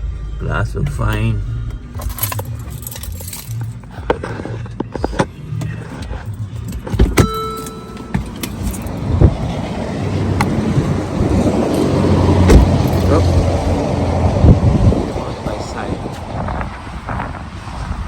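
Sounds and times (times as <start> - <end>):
handling clicks and knocks: 2.0 - 9.0
passing vehicle road noise: 5.4 - 18.0.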